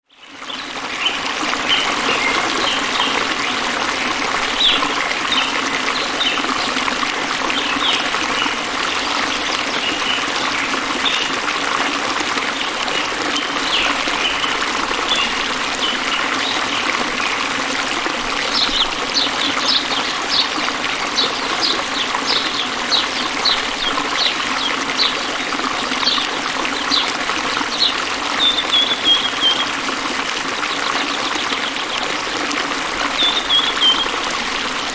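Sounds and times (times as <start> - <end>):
water trickling over stones: 0.2 - 34.9
birds chirping: 18.4 - 32.4, 33.0 - 34.9.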